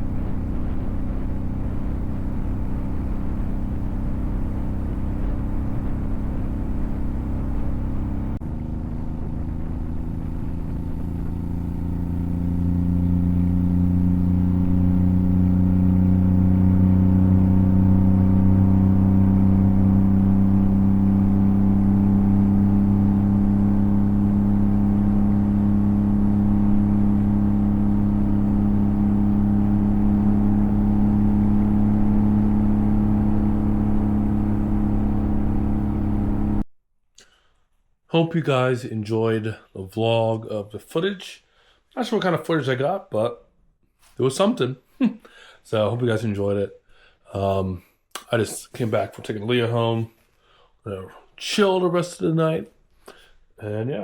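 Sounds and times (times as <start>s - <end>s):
motorcycle engine rumbling: 0.0s - 36.6s.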